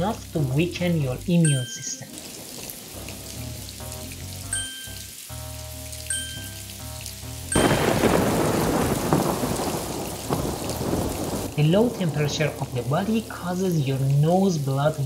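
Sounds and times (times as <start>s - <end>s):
rain: 0.0s - 15.0s
thunder: 7.6s - 12.7s.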